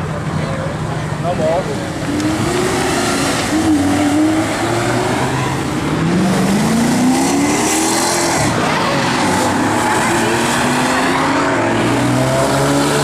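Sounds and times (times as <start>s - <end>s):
car engine accelerating: 0.1s - 13.0s.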